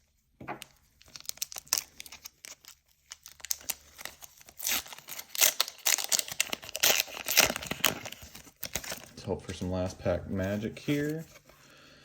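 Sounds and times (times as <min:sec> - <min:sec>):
foil wrapper tearing and crinkling: 0:00.6 - 0:09.1.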